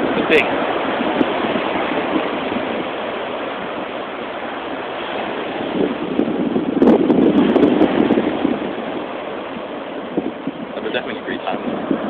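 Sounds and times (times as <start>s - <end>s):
ocean surf washing up beach: 0.0s - 12.0s
wind noise on microphone: 0.0s - 12.0s.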